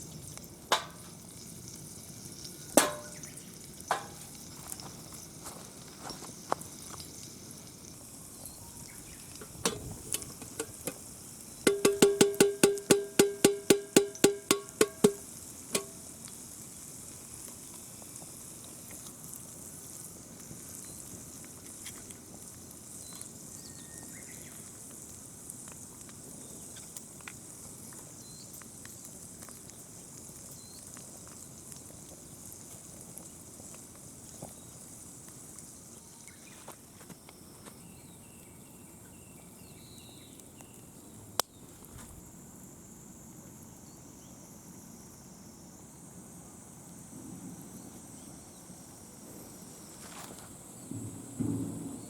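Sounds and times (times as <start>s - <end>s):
faint steady hiss: 0.0s - 52.0s
ringing metallic strikes: 2.8s - 3.2s, 11.7s - 15.2s, 15.8s - 16.0s.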